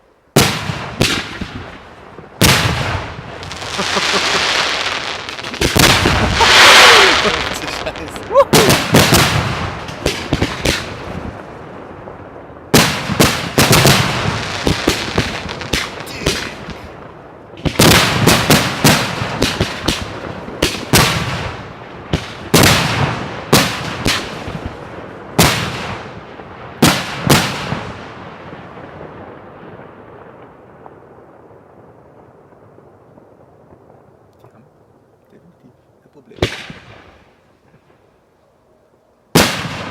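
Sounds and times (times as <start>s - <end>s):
firework shells bursting: 0.4s - 11.0s.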